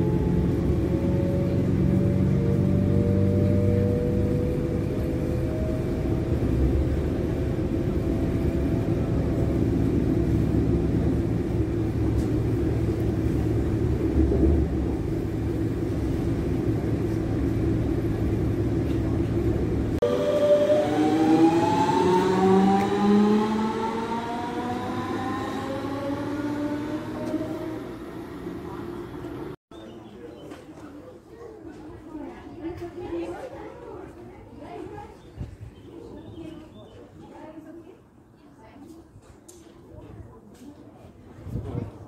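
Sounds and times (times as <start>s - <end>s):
train rumbling on rails: 0.0s - 29.6s
traction motors whining: 11.6s - 29.6s.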